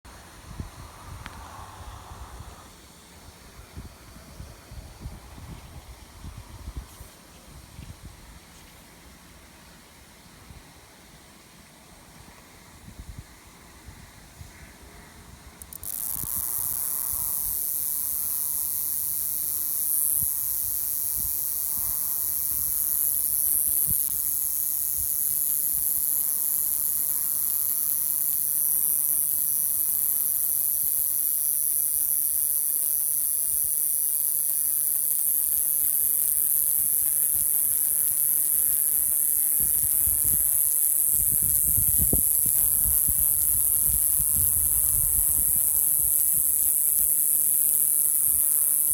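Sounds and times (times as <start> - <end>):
cicada buzzing: 0.1 - 5.6, 15.5 - 48.9.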